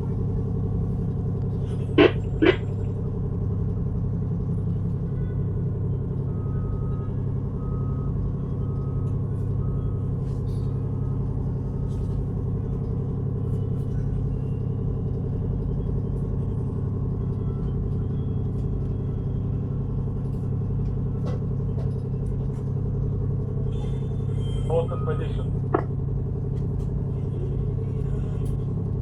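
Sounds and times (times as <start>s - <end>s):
ship engine rumble: 0.0s - 29.0s
short electronic beeps: 1.8s - 2.9s.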